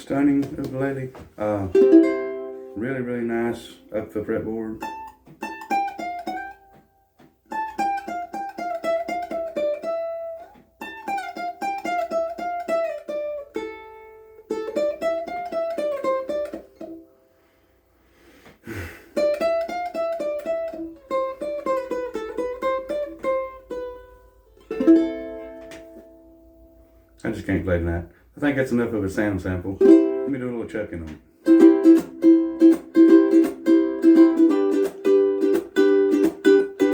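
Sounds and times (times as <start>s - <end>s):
ukulele plucked melody: 0.0s - 17.3s, 19.2s - 27.1s, 29.6s - 36.9s
ukulele strummed chord: 1.4s - 4.1s, 24.6s - 26.8s, 29.8s - 30.6s, 31.4s - 36.9s.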